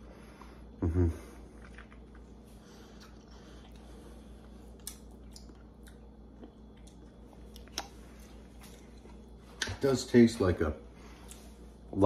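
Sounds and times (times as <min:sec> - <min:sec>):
wet chewing of soft fruit: 0:01.3 - 0:09.8.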